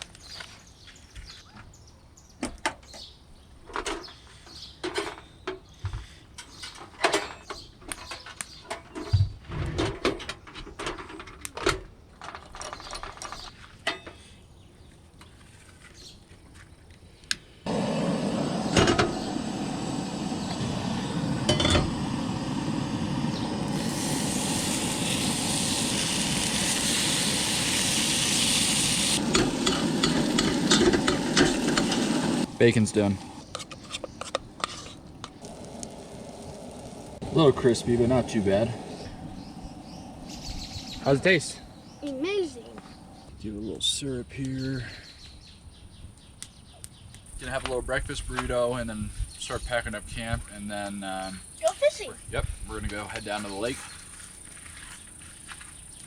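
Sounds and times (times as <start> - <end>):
bacon sizzling in a pan: 21.2 - 33.1, 35.4 - 38.7
pans and utensils clinking: 29.2 - 32.2.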